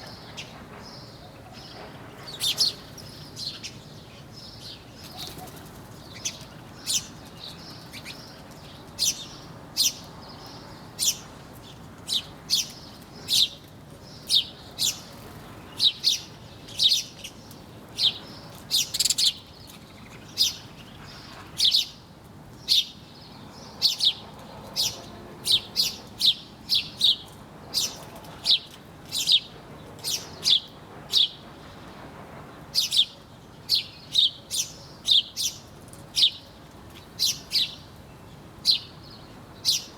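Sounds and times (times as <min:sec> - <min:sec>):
small birds chirping: 0:00.0 - 0:22.0, 0:32.8 - 0:39.9.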